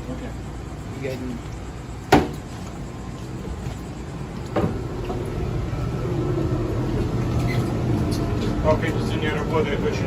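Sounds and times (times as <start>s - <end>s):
air conditioner humming: 0.0s - 10.0s
single knock: 2.1s - 2.4s.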